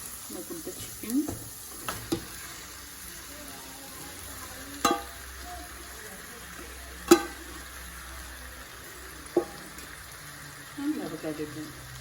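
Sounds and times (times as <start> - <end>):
chicken sizzling in oil: 0.0 - 12.0
metal spoon clanking on pan: 1.2 - 2.6, 4.8 - 5.4, 7.0 - 7.7, 9.3 - 10.0.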